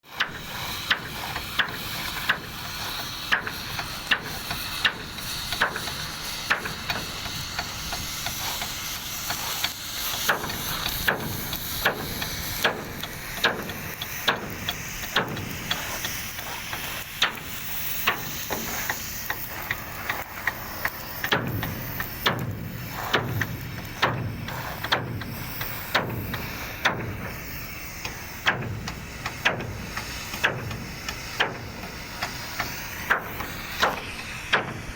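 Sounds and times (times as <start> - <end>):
hammer strikes: 28.0 - 34.9.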